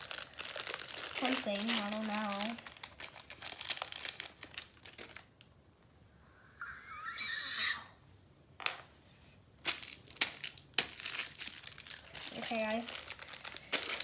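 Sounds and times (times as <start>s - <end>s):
plastic packaging crinkling: 0.0s - 5.5s, 9.6s - 14.0s
high wavering squeal: 6.3s - 8.0s.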